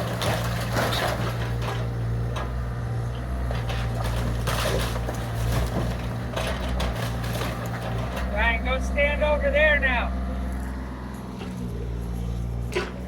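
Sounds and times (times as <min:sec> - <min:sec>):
wood crunching and cracking: 0:00.0 - 0:02.3, 0:03.4 - 0:08.5
excavator diesel engine running: 0:00.0 - 0:13.0.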